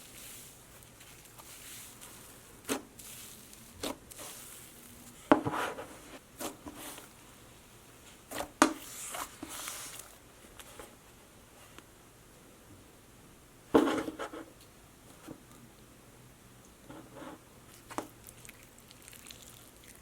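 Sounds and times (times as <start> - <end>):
rubbing and rustling: 0.0 - 7.2, 8.1 - 11.0.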